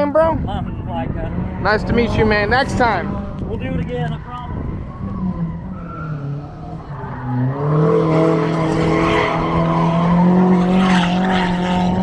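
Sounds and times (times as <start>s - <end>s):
car engine revving: 0.2s - 12.0s.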